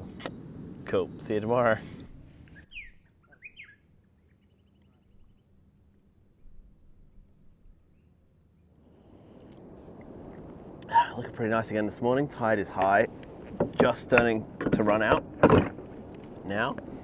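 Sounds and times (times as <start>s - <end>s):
faint birdsong: 0.0s - 9.4s.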